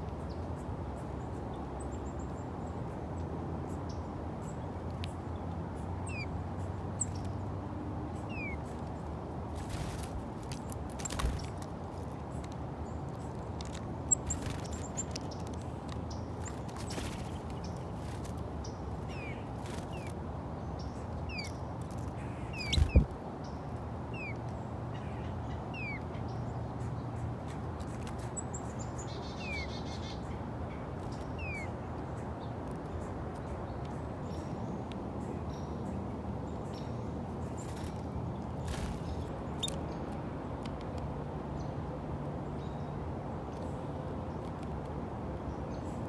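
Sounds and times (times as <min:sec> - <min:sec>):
small birds chirping: 0:00.0 - 0:41.8.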